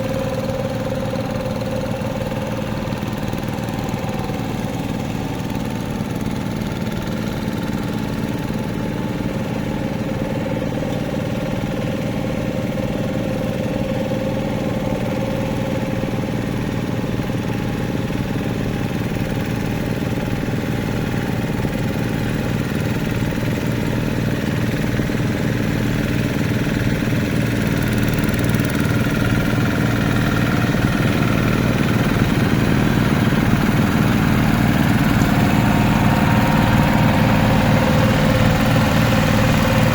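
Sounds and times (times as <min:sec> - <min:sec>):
hand tractor engine running: 0:00.0 - 0:39.9.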